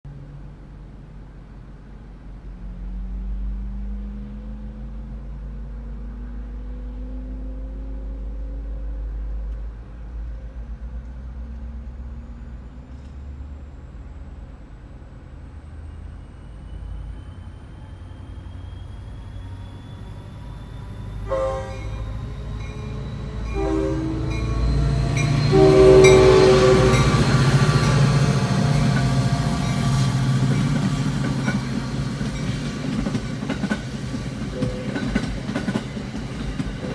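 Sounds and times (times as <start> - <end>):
diesel locomotive engine throttling up: 8.6 - 36.9
high whine: 19.9 - 33.2
train horn blasts: 21.2 - 32.0.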